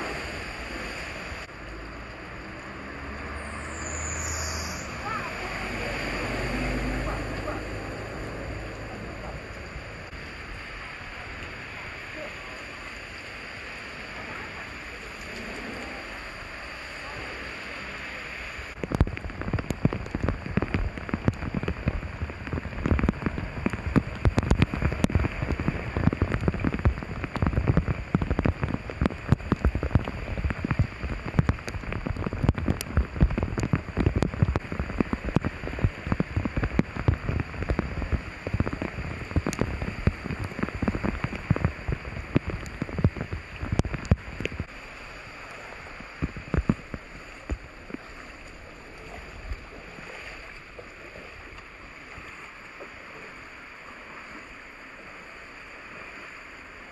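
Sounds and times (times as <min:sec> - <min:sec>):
heavy rain drops pattering: 0:00.0 - 0:56.9.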